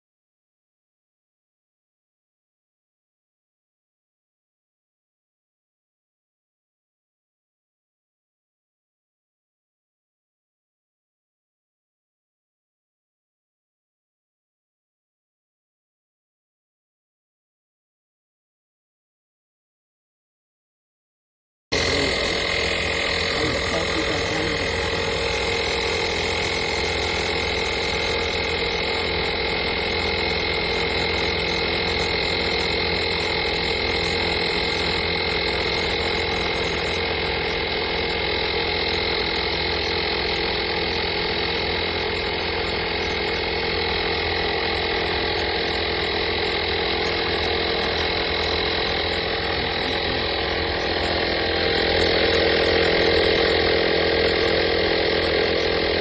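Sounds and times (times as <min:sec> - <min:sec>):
air compressor running: 0:21.7 - 0:56.0.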